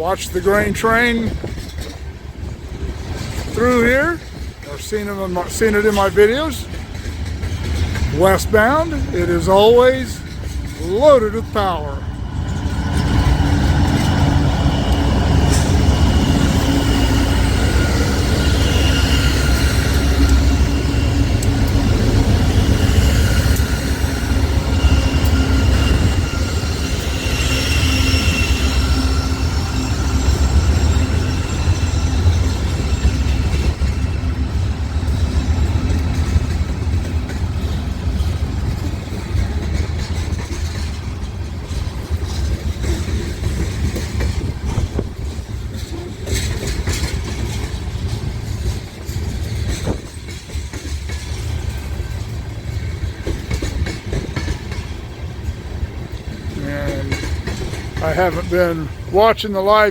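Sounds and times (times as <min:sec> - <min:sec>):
freight train rumbling: 0:00.0 - 0:59.9
high wheel squeal: 0:08.2 - 0:36.4.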